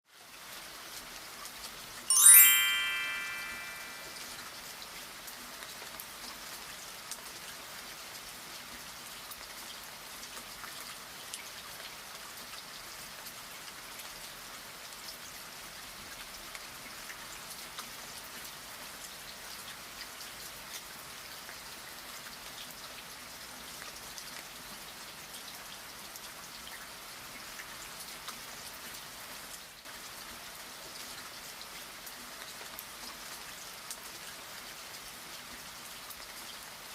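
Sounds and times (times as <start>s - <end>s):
ringing chime: 2.1s - 4.2s.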